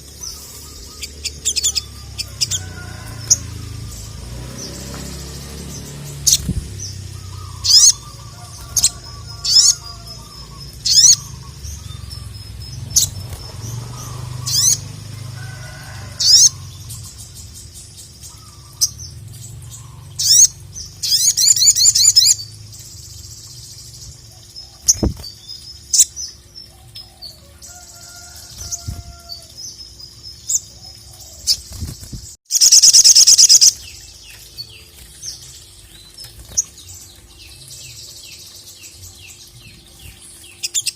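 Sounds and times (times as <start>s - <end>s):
bird trilling: 5.8s - 14.9s
bird calling in sharp high chirps: 7.2s - 12.3s, 32.5s - 33.8s.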